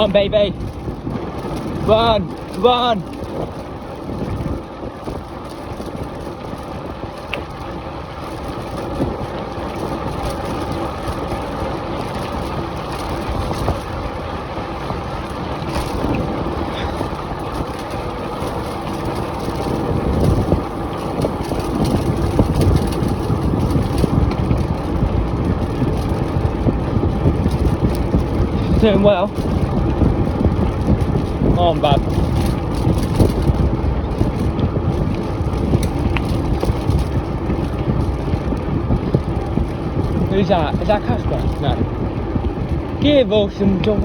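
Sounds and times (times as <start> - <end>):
bike tyres rumbling on track: 0.0 - 44.0
wind buffeting microphone: 0.0 - 44.0.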